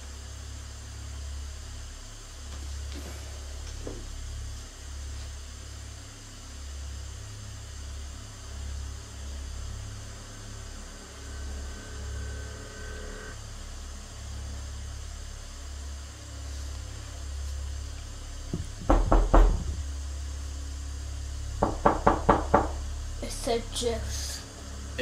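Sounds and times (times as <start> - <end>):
steady low hum: 0.0 - 25.0
sharp knocks with low thud: 18.5 - 19.8.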